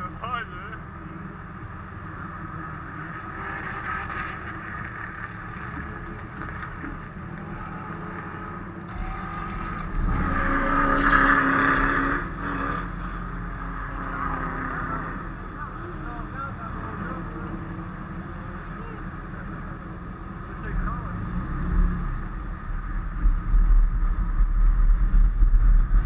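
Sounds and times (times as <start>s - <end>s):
car engine running: 0.0s - 26.0s.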